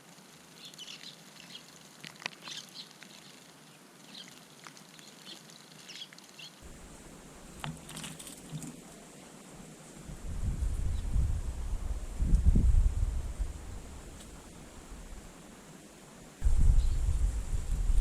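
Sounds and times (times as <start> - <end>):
wind rumble on microphone: 9.9 - 15.3, 16.4 - 18.0.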